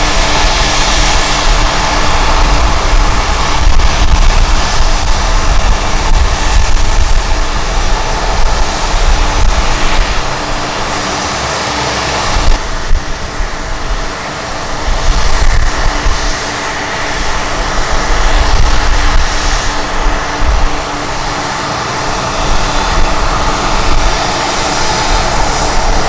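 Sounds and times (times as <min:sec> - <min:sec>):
jet engines running: 0:00.0 - 0:26.0
wind on microphone: 0:00.0 - 0:26.0.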